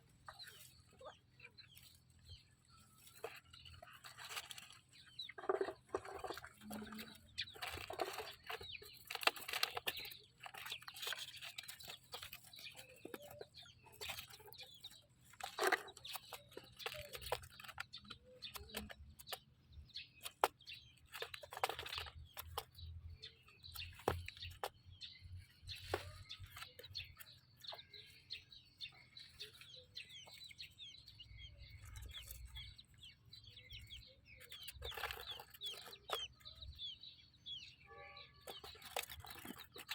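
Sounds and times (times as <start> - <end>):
hen clucking: 0.0 - 19.4
chicks peeping: 0.0 - 39.9.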